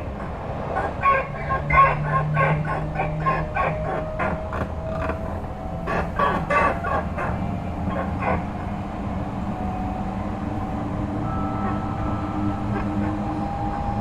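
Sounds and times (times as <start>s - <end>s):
electric train running hum: 0.0s - 14.0s
rising electric motor tone: 9.5s - 14.0s.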